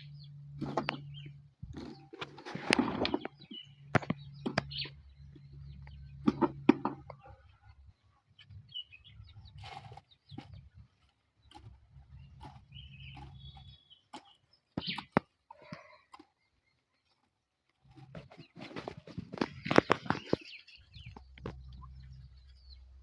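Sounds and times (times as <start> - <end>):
low hum: 0.0 - 14.8, 17.2 - 23.0
bird chirps: 0.0 - 17.3, 17.9 - 23.0.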